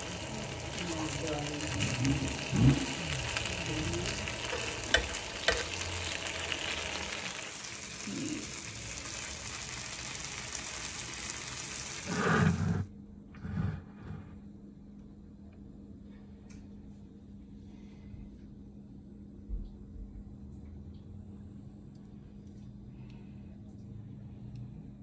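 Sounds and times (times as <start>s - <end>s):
meat sizzling on grill pan: 0.0s - 12.8s.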